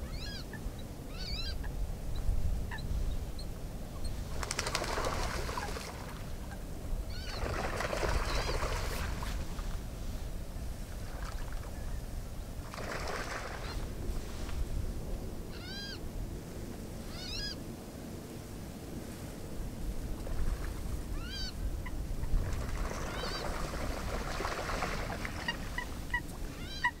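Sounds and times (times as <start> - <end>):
bird calling: 0.0 - 1.6, 6.5 - 9.0, 15.5 - 16.0, 17.1 - 17.6, 21.2 - 21.6, 22.9 - 23.6, 24.8 - 27.0.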